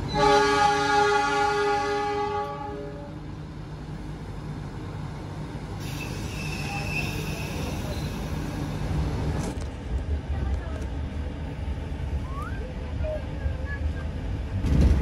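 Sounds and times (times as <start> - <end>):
train coaches rumbling on track: 0.0 - 15.0
train horn: 0.1 - 3.2.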